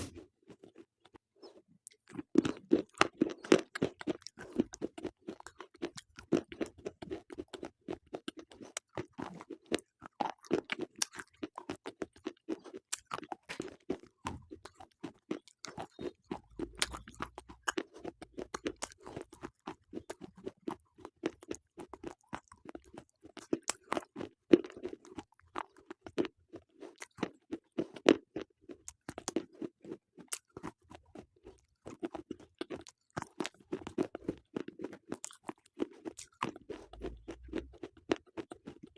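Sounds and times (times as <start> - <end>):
crunchy chewing close up: 0.0 - 38.9.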